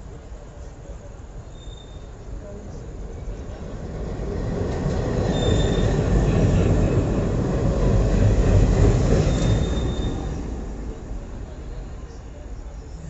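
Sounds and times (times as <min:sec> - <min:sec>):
train wheels rumbling on rails: 0:00.0 - 0:13.0
high wheel squeals: 0:01.5 - 0:02.3, 0:05.2 - 0:07.0, 0:09.1 - 0:10.6.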